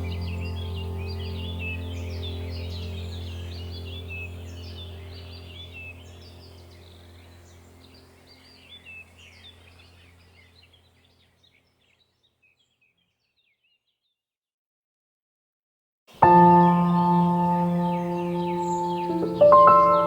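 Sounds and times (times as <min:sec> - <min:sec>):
low steady drone: 0:00.0 - 0:09.4, 0:16.2 - 0:20.0
small birds chirping: 0:00.0 - 0:14.2, 0:16.1 - 0:20.0.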